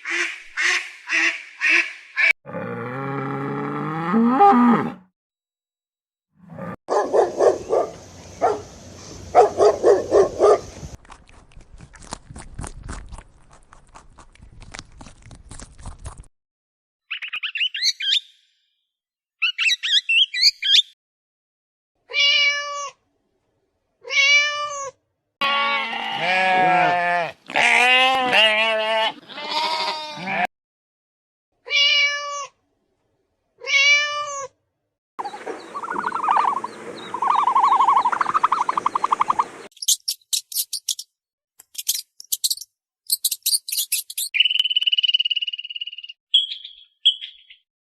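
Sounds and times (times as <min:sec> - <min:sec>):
cat meowing: 0:22.1 - 0:23.0, 0:24.0 - 0:28.4, 0:31.7 - 0:32.5, 0:33.6 - 0:34.5.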